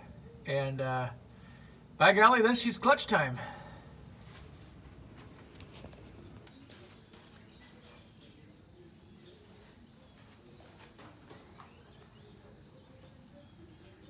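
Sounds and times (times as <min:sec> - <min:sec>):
small birds chirping: 0:04.8 - 0:14.0.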